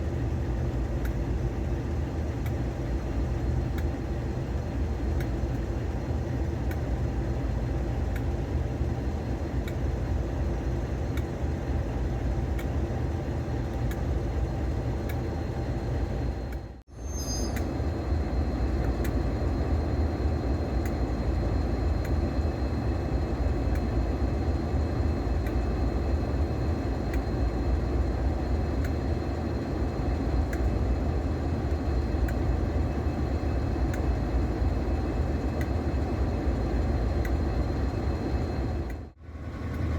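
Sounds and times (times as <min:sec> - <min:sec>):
train rumble and drone: 0:00.0 - 0:39.9
light clicks: 0:30.4 - 0:30.7.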